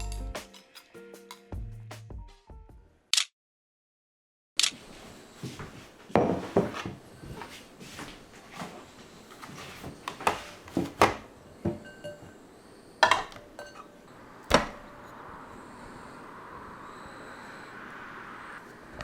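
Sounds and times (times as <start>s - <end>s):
kitchenware knocking and clinking: 9.4s - 12.4s, 13.0s - 14.9s.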